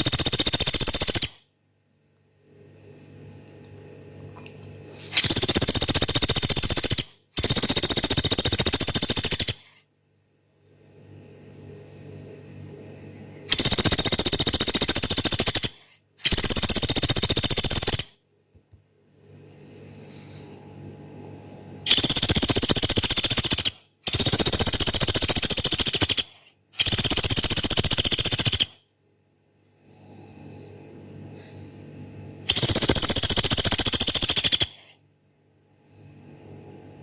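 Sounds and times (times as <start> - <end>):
woodpecker rattling calls: 0.0 - 1.4, 5.2 - 9.7, 13.5 - 18.1, 21.9 - 28.8, 32.5 - 34.8.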